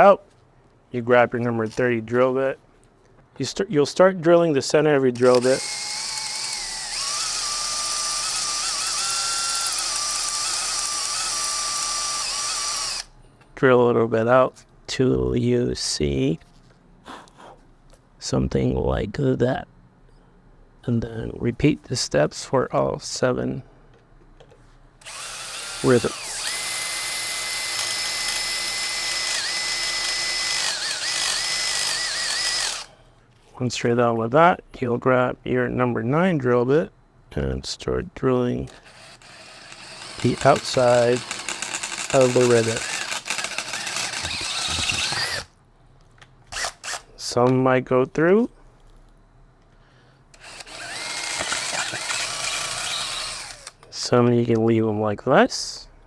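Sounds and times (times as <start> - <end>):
power drill whining: 5.2 - 13.1, 25.0 - 32.9, 38.7 - 45.5, 46.5 - 47.0, 50.4 - 53.8.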